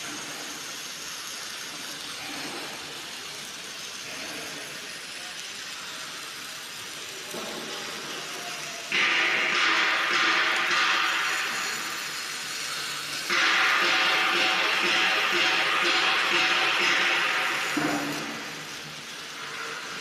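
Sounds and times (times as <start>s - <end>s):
welding arc hissing: 0.0s - 20.0s.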